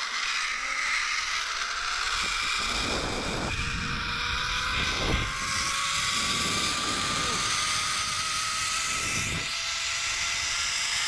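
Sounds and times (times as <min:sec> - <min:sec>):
zipline pulleys whining on cable: 0:00.0 - 0:11.0
wind buffeting microphone: 0:02.0 - 0:10.3.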